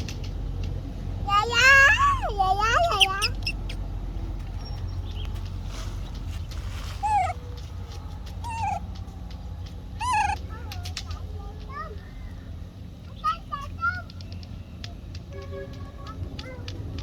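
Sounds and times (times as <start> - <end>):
baby monkey high-pitched calls: 1.3 - 3.9, 6.8 - 7.5, 8.3 - 9.0, 10.0 - 10.7.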